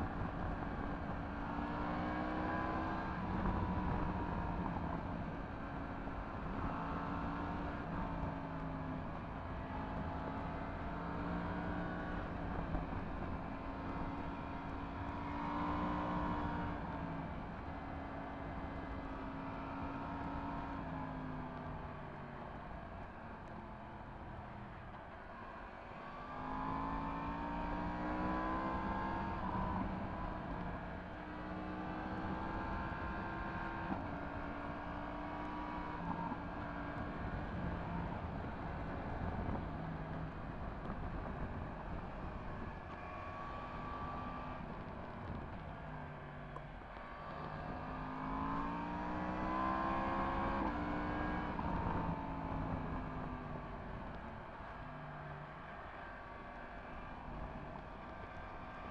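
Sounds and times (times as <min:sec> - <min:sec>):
motorcycle engine accelerating: 0:25.9 - 0:58.9.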